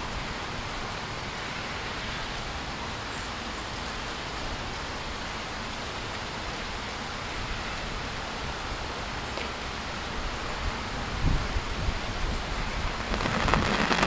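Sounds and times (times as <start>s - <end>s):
rain hissing: 0.0s - 14.0s
wind rumble on microphone: 10.0s - 14.0s.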